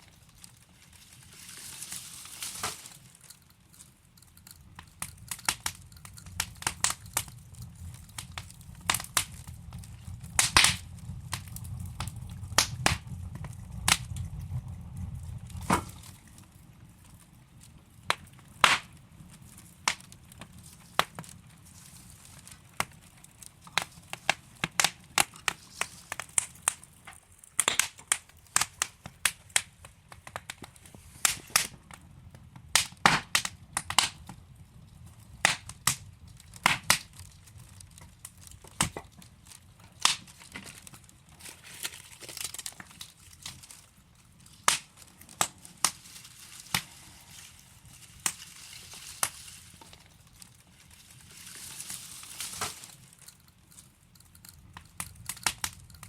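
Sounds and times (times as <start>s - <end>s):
logs crackling and popping: 0.0s - 56.0s
low rumble: 4.8s - 18.0s.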